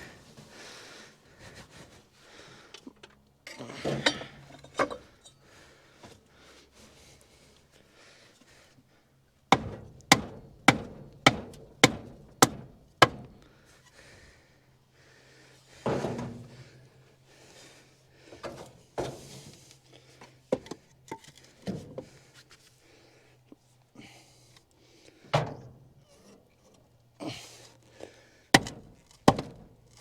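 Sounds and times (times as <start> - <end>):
wood striking metal engine: 9.5 - 13.6, 28.5 - 30.0.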